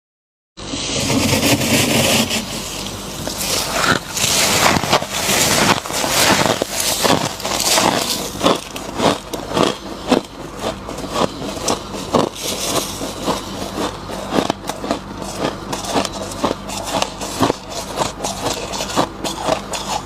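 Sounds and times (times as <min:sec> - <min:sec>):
frost crunching while eaten: 0:02.5 - 0:20.0.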